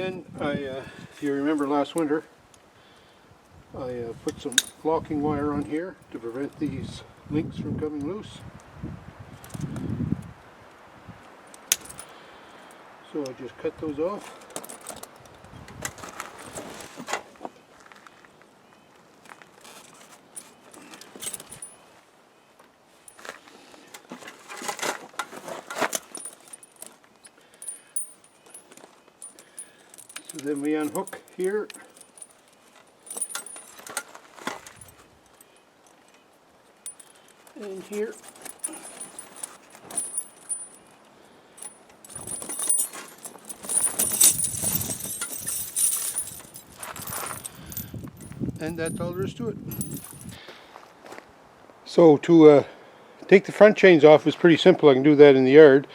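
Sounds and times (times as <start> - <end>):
metal chains clinking and jingling: 11.7 - 12.1, 20.4 - 21.8, 25.7 - 35.6, 36.8 - 50.4.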